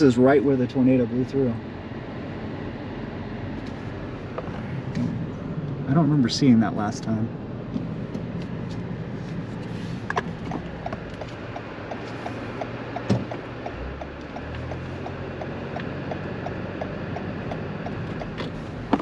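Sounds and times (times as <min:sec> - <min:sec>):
car engine and road rumble: 0:00.0 - 0:19.0
turn signal clicking: 0:10.0 - 0:19.0
sharp knocks: 0:10.2 - 0:19.0.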